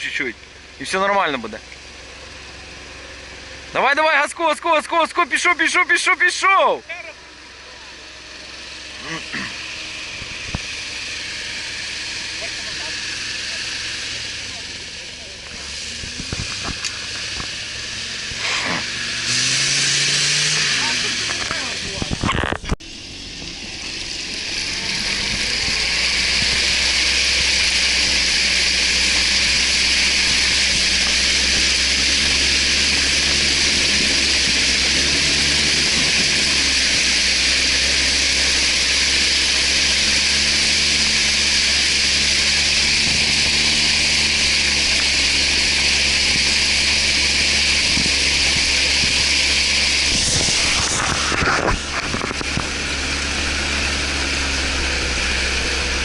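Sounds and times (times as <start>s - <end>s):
off-road vehicle engine running: 0.0s - 56.0s
loud even hiss: 17.0s - 21.0s.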